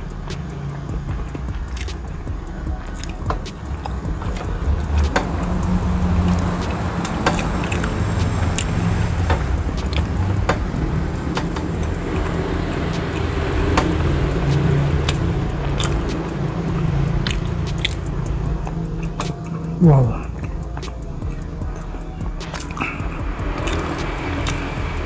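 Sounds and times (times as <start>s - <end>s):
steady low hum: 0.0s - 25.0s
chewing soft cake: 16.7s - 18.0s
wet mouth clicks and smacks: 17.2s - 18.1s.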